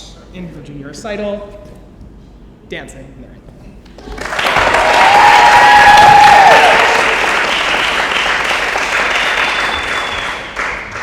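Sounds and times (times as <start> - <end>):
audience applauding: 4.0 - 11.0
voices cheering: 4.2 - 11.0.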